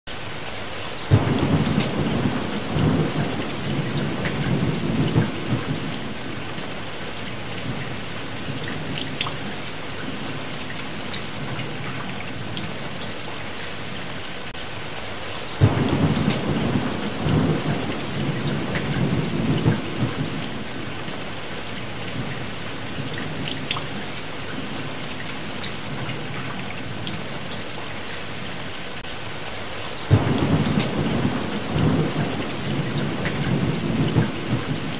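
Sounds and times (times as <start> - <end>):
heavy rain: 0.1 - 34.9
thunder rolling: 1.1 - 6.6, 15.6 - 21.0, 30.1 - 34.9.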